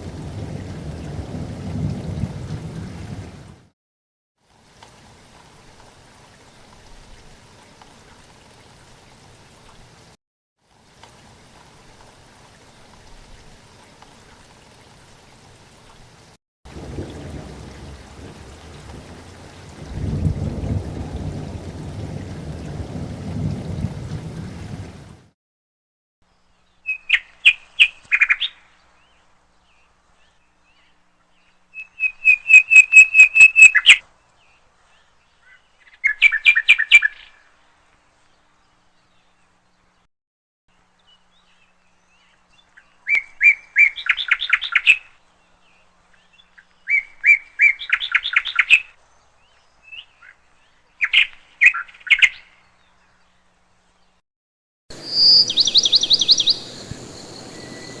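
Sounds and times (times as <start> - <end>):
songbird chirping: 26.3 - 40.1, 40.7 - 54.2, 54.9 - 58.0.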